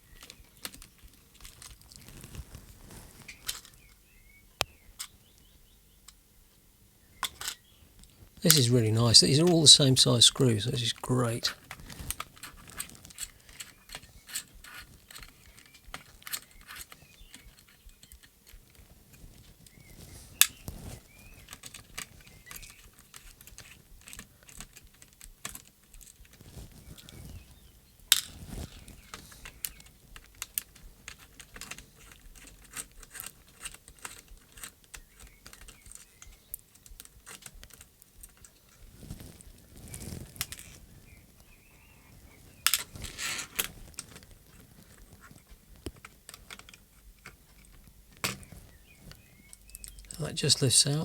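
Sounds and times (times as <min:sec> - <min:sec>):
small screws and plastic clicking: 0:00.2 - 0:02.5, 0:07.2 - 0:08.6, 0:11.7 - 0:18.8, 0:21.4 - 0:27.2, 0:28.1 - 0:40.8, 0:42.6 - 0:50.2.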